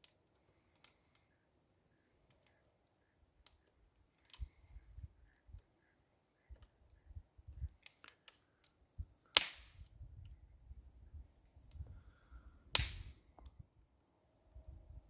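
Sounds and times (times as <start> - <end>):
brush fire crackling: 0.0 - 5.6, 7.5 - 13.6
small ticks: 0.0 - 10.4, 11.2 - 13.9
loud sharp pops: 9.3 - 9.8, 12.7 - 13.1.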